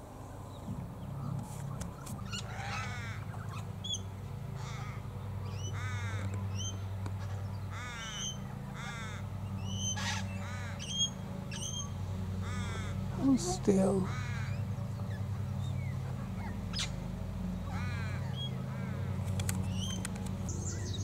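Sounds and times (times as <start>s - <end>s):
lawnmower engines droning: 0.0s - 21.0s
crow-like cawing: 2.3s - 3.4s, 4.5s - 5.0s, 5.7s - 6.3s, 7.7s - 9.3s, 10.0s - 11.0s, 12.4s - 13.2s, 14.0s - 14.6s, 17.7s - 19.1s.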